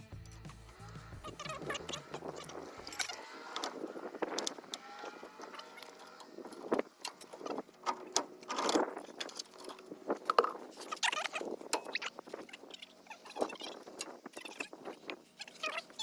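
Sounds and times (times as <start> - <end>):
metallic clinks of tools: 1.4 - 9.8.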